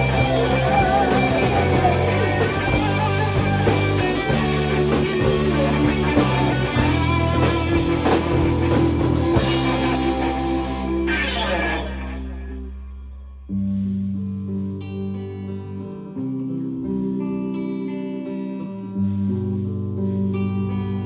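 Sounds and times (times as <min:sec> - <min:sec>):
rock music with guitar and drums: 0:00.0 - 0:12.7.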